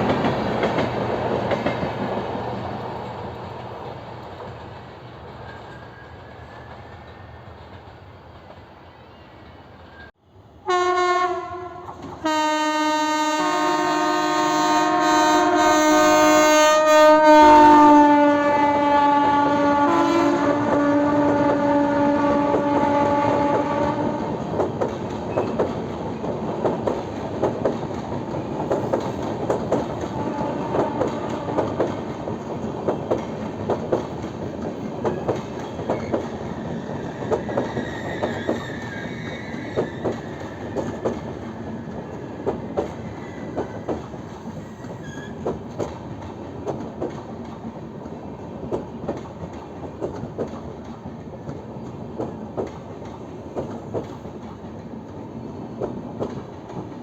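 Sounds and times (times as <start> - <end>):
train wheels clacking on rails: 0.0 - 10.1, 19.2 - 57.0
train horn: 10.6 - 24.5, 30.0 - 32.0.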